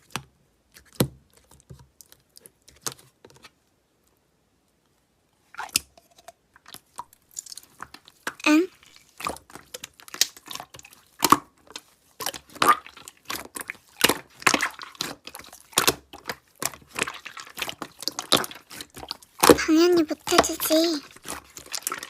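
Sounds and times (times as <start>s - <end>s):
slime crackling and squelching: 6.8s - 22.0s.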